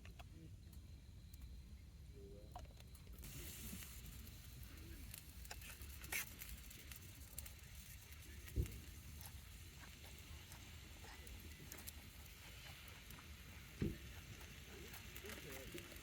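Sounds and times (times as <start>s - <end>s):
light crackles and clicks: 0.0s - 1.6s, 2.2s - 16.0s
faint hiss: 0.0s - 16.0s.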